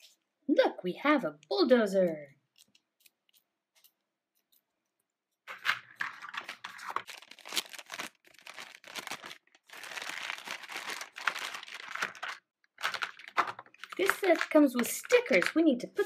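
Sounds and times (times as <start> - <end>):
packaging crinkling and tearing: 5.5 - 15.6.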